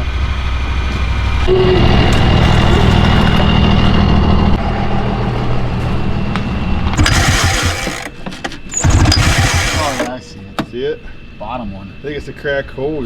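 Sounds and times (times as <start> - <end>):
snowmobile engine running: 7.0 - 8.1, 8.8 - 10.1.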